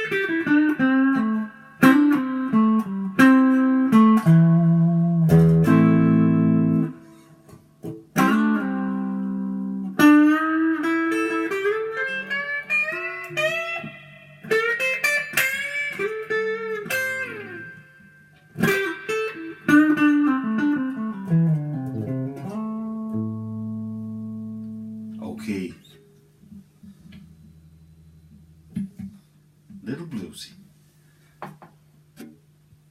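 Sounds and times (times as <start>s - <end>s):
bluesy electric guitar: 0.0s - 29.8s.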